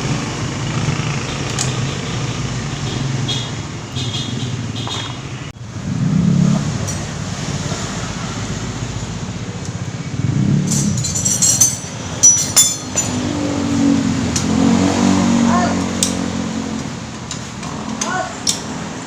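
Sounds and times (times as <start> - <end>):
sharp metallic clinks: 10.6 - 13.4.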